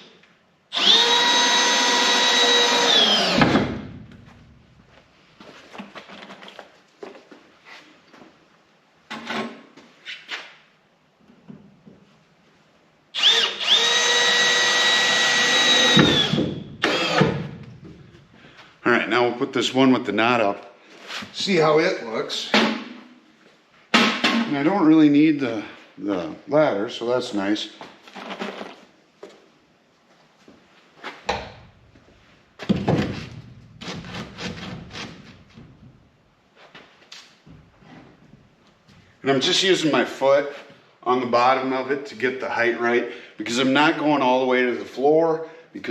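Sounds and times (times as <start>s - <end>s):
drill driving screw into wood: 0.7s - 4.0s, 13.2s - 17.6s.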